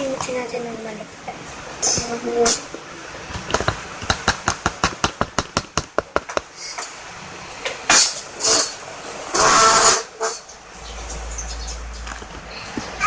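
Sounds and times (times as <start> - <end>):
fast run of clicks: 3.3 - 6.5
harsh scraping rasps: 8.0 - 13.0.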